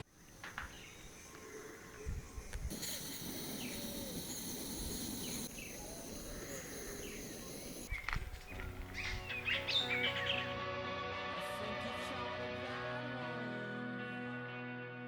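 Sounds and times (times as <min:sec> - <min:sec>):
insects droning: 0:00.0 - 0:10.5
birds chirping: 0:00.0 - 0:10.6.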